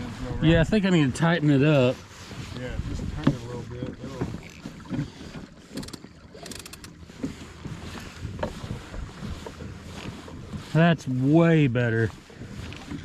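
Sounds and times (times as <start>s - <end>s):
light clicks and knocks: 3.2s - 7.4s.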